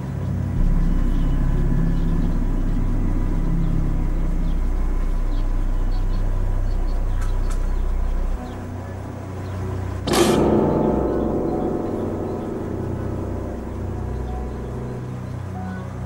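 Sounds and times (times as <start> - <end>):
car engine running: 0.6 - 8.9.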